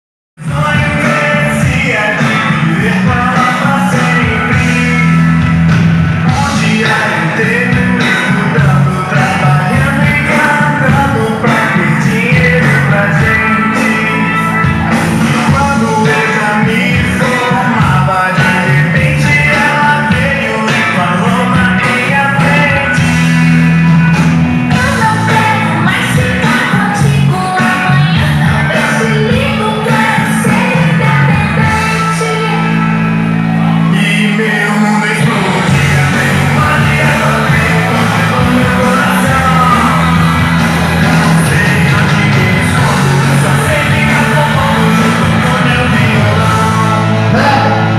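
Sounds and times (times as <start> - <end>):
loud music with singing and bass: 0.4 - 47.9.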